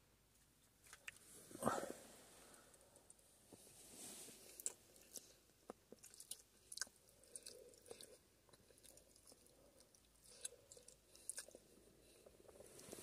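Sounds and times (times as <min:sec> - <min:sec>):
chewing with wet mouth clicks: 0:04.6 - 0:12.4.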